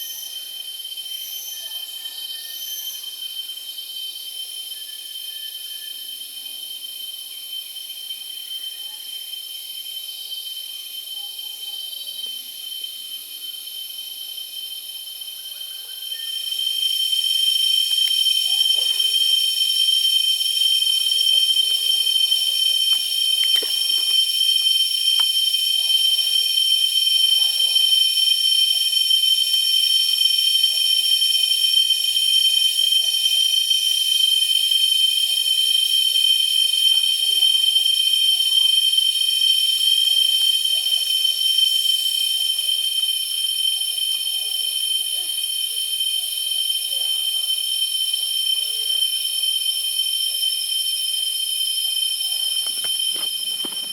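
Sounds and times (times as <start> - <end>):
insect chorus shrilling: 0.0 - 53.9.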